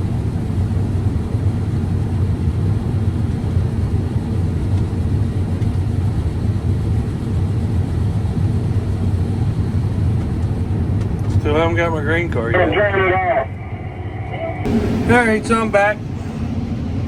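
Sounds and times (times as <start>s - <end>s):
combine harvester droning: 10.7s - 17.0s.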